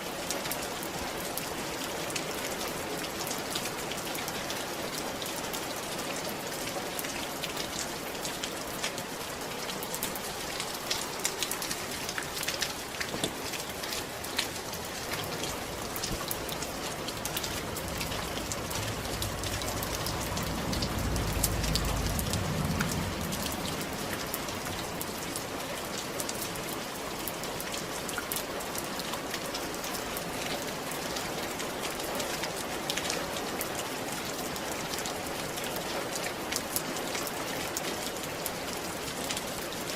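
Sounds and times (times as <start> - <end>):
rain on a roof: 0.0 - 39.9
low rumble: 17.3 - 24.9.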